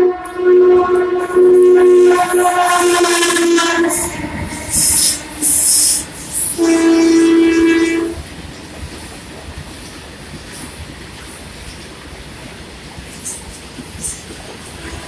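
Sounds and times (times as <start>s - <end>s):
locomotive horn: 0.0s - 8.3s, 14.8s - 15.0s
train running on rails: 0.0s - 15.0s.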